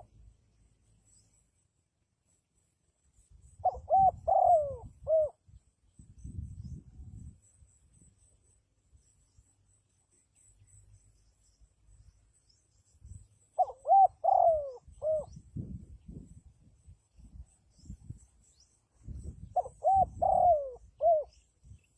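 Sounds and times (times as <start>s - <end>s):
dove cooing: 3.6s - 5.4s, 13.6s - 15.4s, 19.5s - 21.4s.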